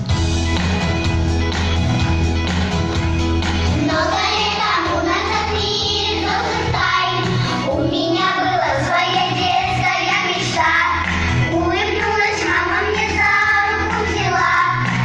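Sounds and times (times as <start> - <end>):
guitar-like instrumental backing: 0.0 - 15.0
child singing: 3.8 - 15.0.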